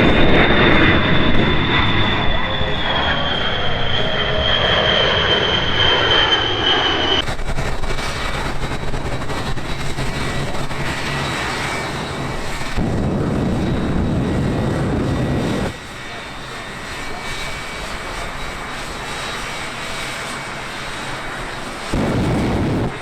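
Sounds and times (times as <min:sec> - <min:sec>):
high whine: 0:00.0 - 0:07.4, 0:21.9 - 0:23.0
aircraft engines running: 0:00.0 - 0:23.0.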